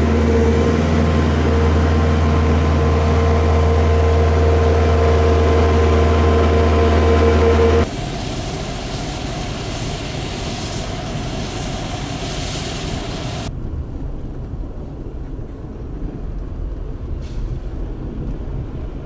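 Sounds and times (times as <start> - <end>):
even rushing noise: 0.0 - 13.5
large engine humming and whining: 0.0 - 13.5.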